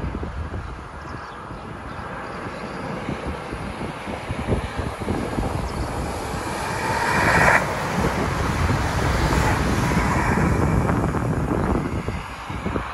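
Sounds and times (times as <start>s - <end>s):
train wheels rumbling on track: 2.8s - 12.9s.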